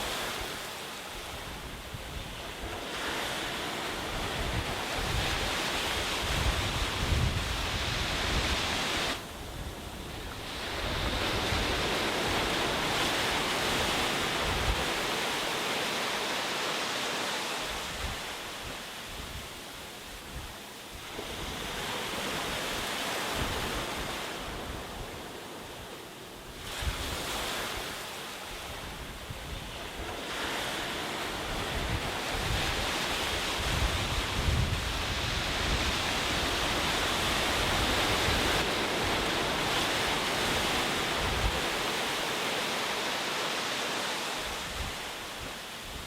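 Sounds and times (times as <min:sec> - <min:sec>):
wind on the microphone: 0:00.0 - 0:15.6, 0:17.2 - 0:43.2, 0:44.0 - 0:46.0
sea waves breaking on a beach: 0:00.0 - 0:46.0.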